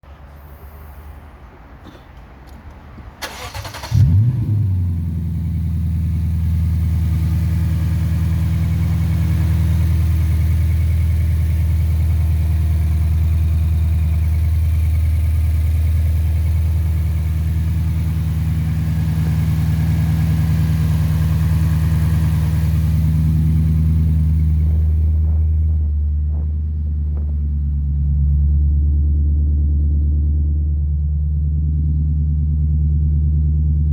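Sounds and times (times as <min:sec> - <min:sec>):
engine cranking: 0:03.2 - 0:04.3
car engine revving and idling: 0:03.3 - 0:33.9.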